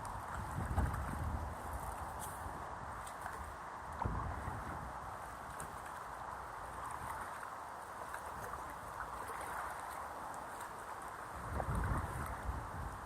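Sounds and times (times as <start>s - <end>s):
wind buffeting microphone: 0.0s - 7.4s, 11.3s - 13.0s
river water splashing: 0.0s - 13.0s.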